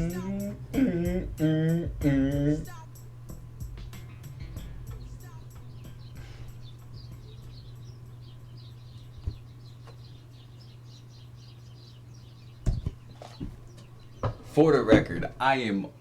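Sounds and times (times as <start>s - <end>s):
bird chirping: 0.0s - 16.0s
steady low hum: 0.0s - 16.0s
loud knocks: 14.2s - 15.4s.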